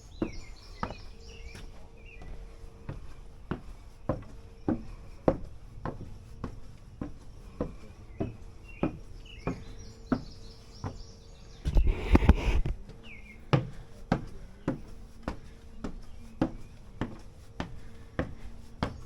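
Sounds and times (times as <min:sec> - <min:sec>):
footsteps walking: 0:11.7 - 0:12.8.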